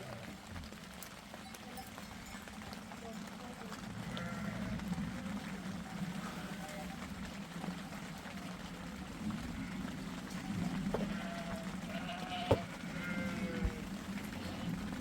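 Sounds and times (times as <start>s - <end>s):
sheep bleating: 4.0s - 4.8s, 6.1s - 7.1s, 9.3s - 15.0s.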